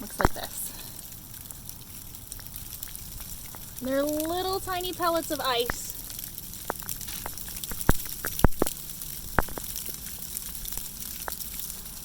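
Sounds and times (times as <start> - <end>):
ice pellets ticking on surfaces: 0.0 - 12.0.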